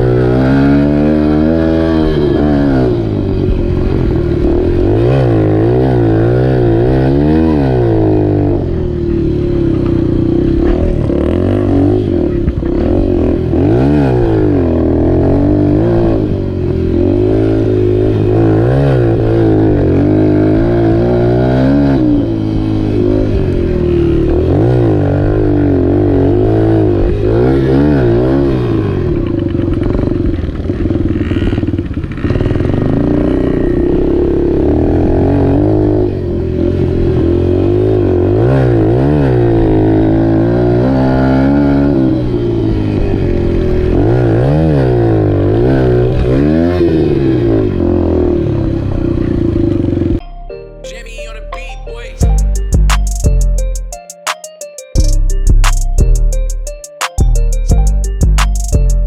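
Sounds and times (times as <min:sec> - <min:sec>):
dirt bike engine revving: 0:00.0 - 0:28.7.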